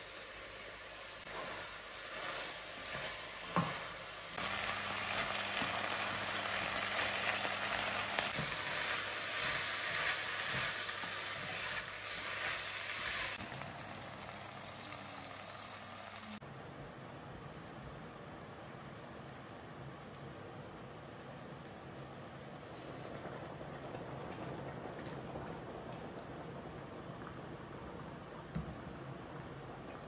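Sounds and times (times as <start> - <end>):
food sizzling in a frying pan: 0.0 - 16.4.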